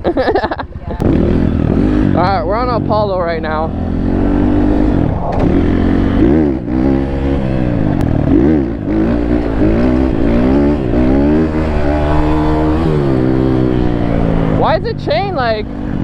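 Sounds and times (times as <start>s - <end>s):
pit bike engine revving: 0.2s - 16.0s.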